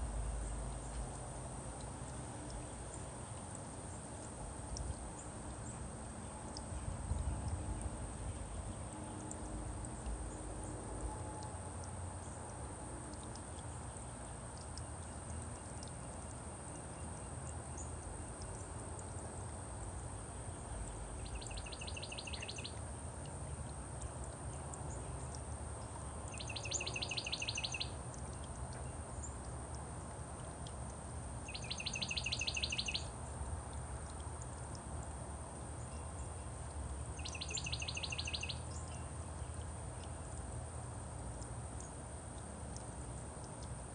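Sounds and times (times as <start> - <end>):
low outdoor rumble: 0.0 - 27.0
songbird trilling: 21.2 - 22.8, 26.3 - 28.5, 31.4 - 33.1, 37.2 - 39.1.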